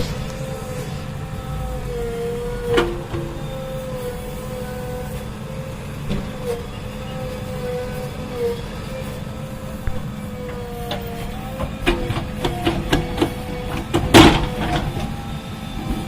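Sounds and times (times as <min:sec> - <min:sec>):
loud crash: 0:00.0 - 0:01.3
wavering whine: 0:00.0 - 0:10.5
diesel engine running: 0:00.0 - 0:16.0.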